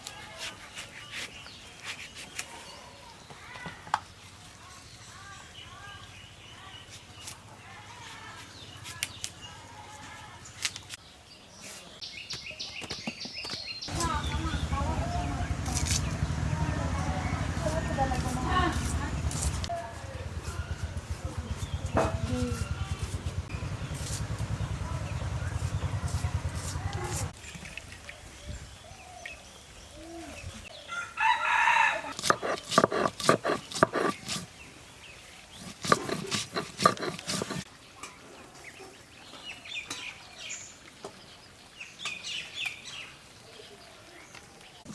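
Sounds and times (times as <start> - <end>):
birds calling: 12.1 - 31.1, 32.1 - 37.7
rooster crowing: 30.9 - 32.4.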